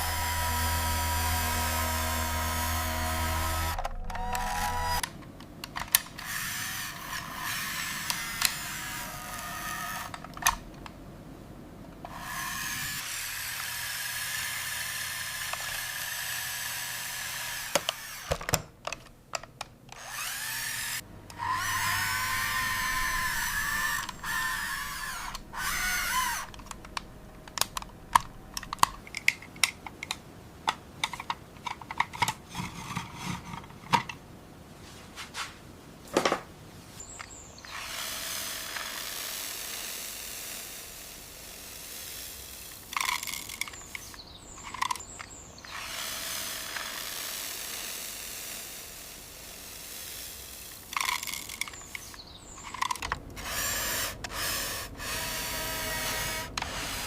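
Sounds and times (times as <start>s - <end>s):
small electric motors whirring: 0.0s - 5.1s, 5.9s - 10.6s, 12.0s - 18.4s, 20.0s - 28.9s, 37.7s - 57.0s
sharp plastic clicks: 3.7s - 6.4s, 9.9s - 11.0s, 17.7s - 20.3s, 23.9s - 34.2s, 42.0s - 45.4s, 50.0s - 55.3s.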